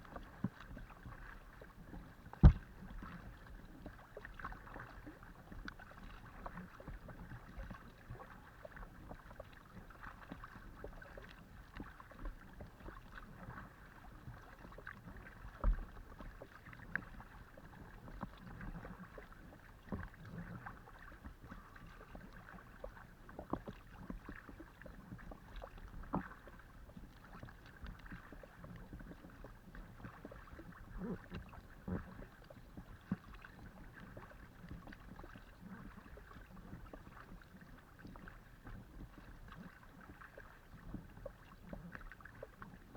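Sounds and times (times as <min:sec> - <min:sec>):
water lapping on hull: 0:00.0 - 0:42.9
paddle splashing in water: 0:00.1 - 0:42.8
thump: 0:02.4 - 0:02.6.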